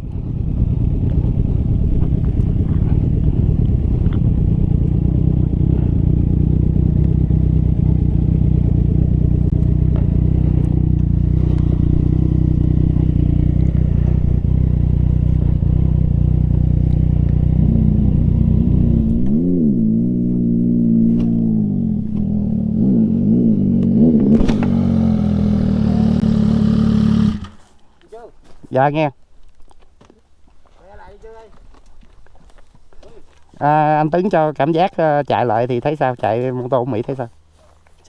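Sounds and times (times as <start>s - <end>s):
motorcycle engine running: 0.0s - 27.7s.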